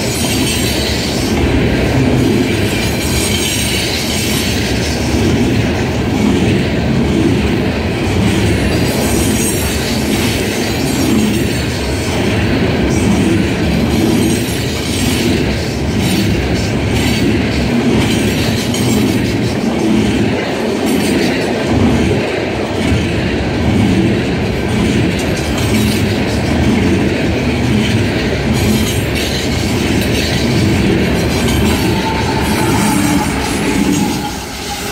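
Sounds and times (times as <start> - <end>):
freight train wheels on rails: 0.0 - 34.9.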